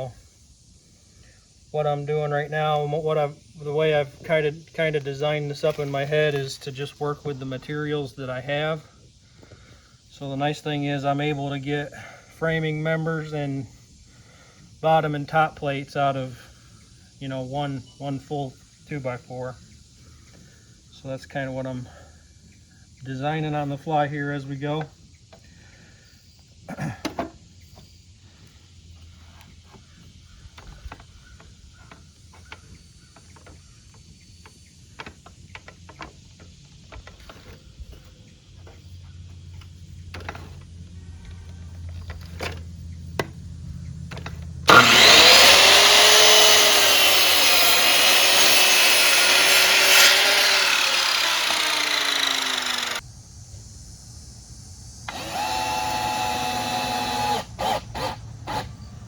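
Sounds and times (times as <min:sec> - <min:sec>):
power saw cutting wood: 0:44.1 - 0:53.0, 0:55.1 - 0:58.9.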